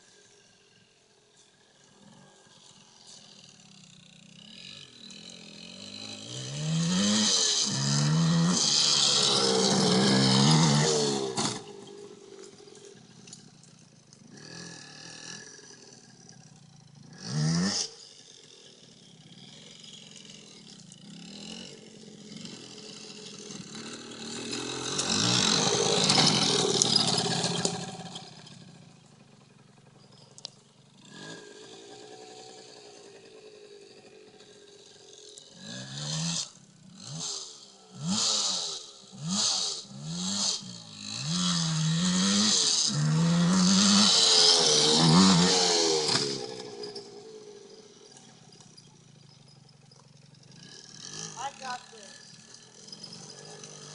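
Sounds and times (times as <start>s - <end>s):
dirt bike engine revving: 1.3s - 53.9s.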